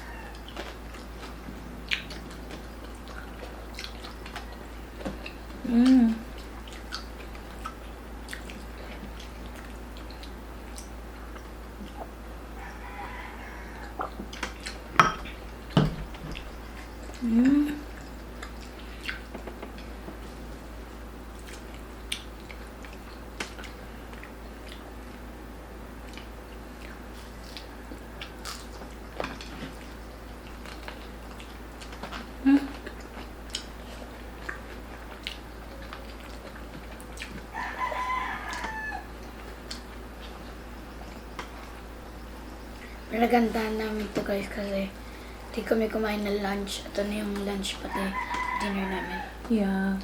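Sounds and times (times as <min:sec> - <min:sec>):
rooster crowing: 0:00.0 - 0:00.6, 0:12.5 - 0:14.1, 0:37.5 - 0:39.2, 0:47.8 - 0:49.4
chewing crispy skin: 0:00.0 - 0:25.3, 0:25.9 - 0:43.0.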